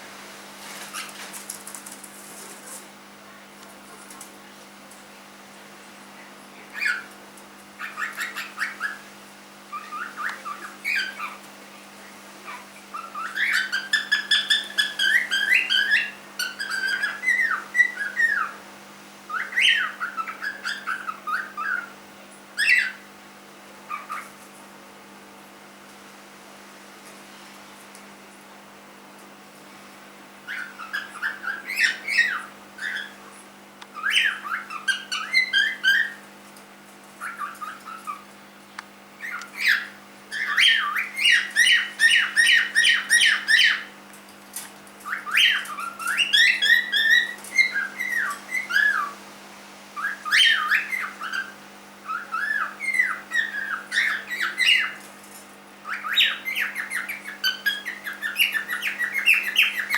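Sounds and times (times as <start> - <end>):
cockatiel whistling and chirping: 6.8 - 7.1, 7.8 - 9.0, 9.7 - 11.4, 12.9 - 18.6, 19.3 - 21.9, 22.6 - 23.0, 23.9 - 24.3, 30.5 - 33.2, 34.0 - 36.2, 37.2 - 38.2, 39.2 - 43.9, 45.0 - 49.2, 50.0 - 55.0, 55.8 - 59.9.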